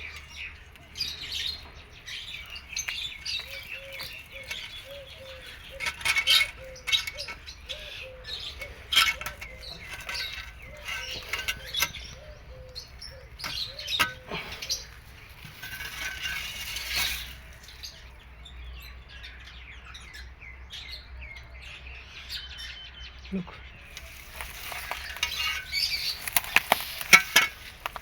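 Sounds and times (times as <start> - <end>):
small birds chirping: 0.0 - 28.0
rustling: 0.8 - 18.2, 23.8 - 28.0.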